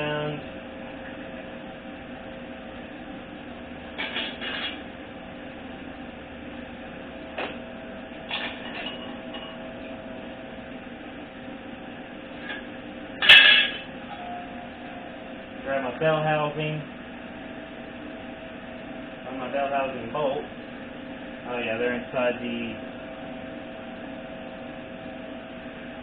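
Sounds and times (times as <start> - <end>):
loud metallic clank: 13.2 - 13.9
parts clattering: 13.2 - 13.9.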